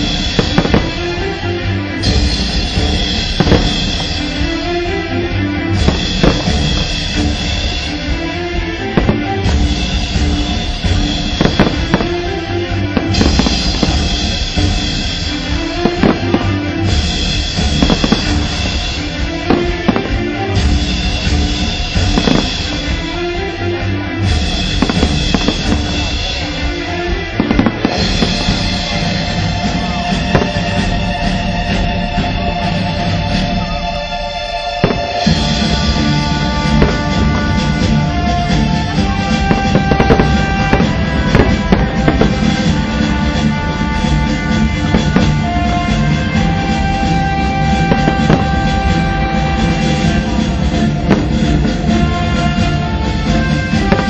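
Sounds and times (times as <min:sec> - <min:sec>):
fireworks banging: 0:00.0 - 0:23.5, 0:24.2 - 0:32.7, 0:34.6 - 0:54.0
loud music with drum beat: 0:00.0 - 0:54.0
sharp firework cracks: 0:11.4 - 0:12.2, 0:17.6 - 0:18.8, 0:22.1 - 0:22.8.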